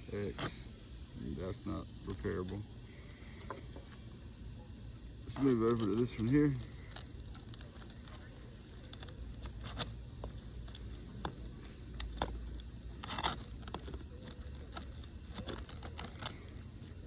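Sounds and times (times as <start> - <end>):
shingles tearing and snapping: 5.3 - 17.0.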